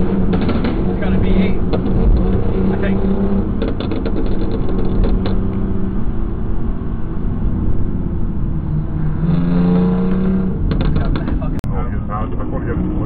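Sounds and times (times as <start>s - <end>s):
car engine drone: 0.0s - 13.0s
road noise: 0.0s - 13.0s.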